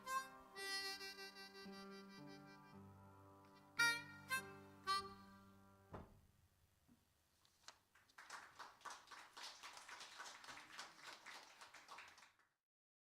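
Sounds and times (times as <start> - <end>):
faint audience applause: 7.8 - 12.6.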